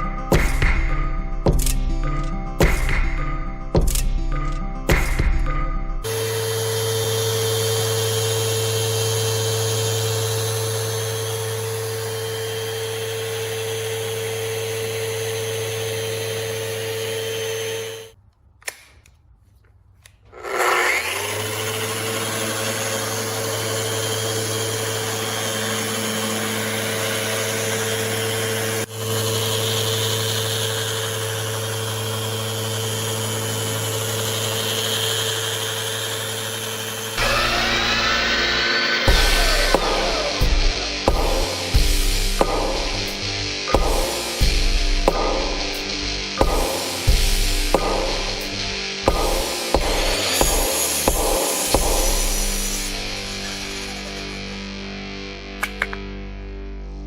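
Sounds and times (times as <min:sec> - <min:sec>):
sander motor hum: 0:06.0 - 0:18.2, 0:19.6 - 0:54.8
sanding hiss: 0:49.2 - 0:54.3.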